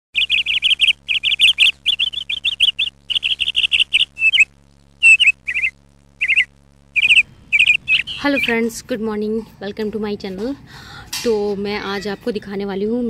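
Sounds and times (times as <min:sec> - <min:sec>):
small bird chirping: 0:00.1 - 0:08.7
faint steady low hum: 0:00.2 - 0:13.0.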